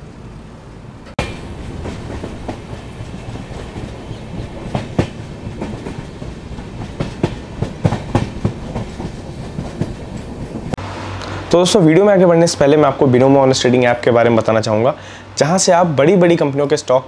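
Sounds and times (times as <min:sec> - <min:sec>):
train coaches rumbling: 0:00.9 - 0:10.8
wheels clicking over rail joints: 0:01.1 - 0:10.8.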